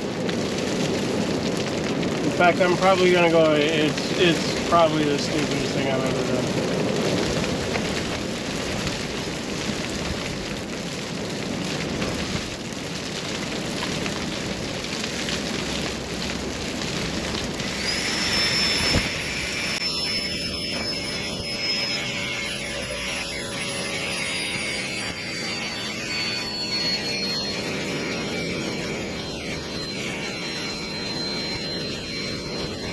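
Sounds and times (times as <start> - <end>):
blizzard wind blowing: 0.0 - 32.9
thin high whistle: 17.6 - 32.9.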